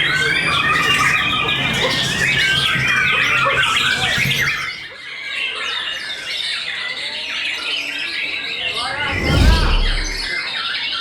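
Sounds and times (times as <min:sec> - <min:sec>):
low hum: 0:08.6 - 0:10.3.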